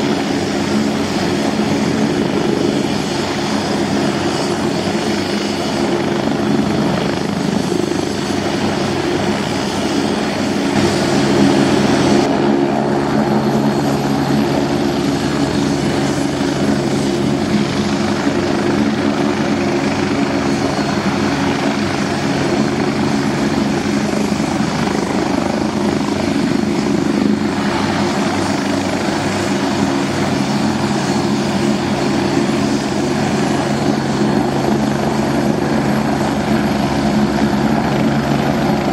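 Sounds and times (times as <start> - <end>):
helicopter rotor and turbine drone: 0.0 - 38.9.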